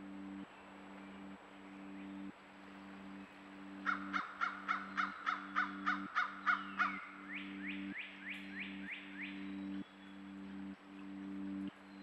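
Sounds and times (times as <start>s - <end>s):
background music with low notes: 0.0s - 12.0s
bird cawing: 3.8s - 10.6s.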